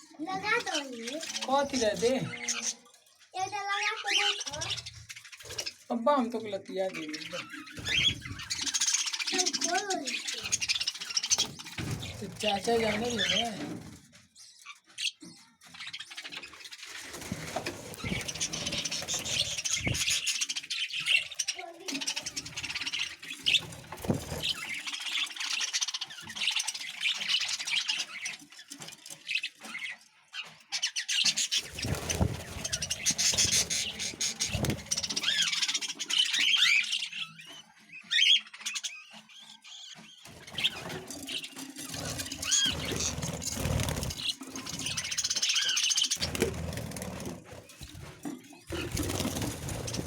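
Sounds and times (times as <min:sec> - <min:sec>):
budgerigars chattering: 0:06.8 - 0:13.6, 0:18.0 - 0:23.6, 0:30.7 - 0:46.5.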